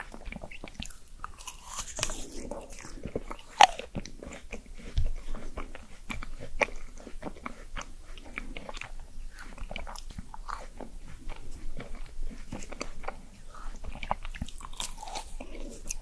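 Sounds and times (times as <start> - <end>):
person chewing and crunching: 0.0 - 16.0.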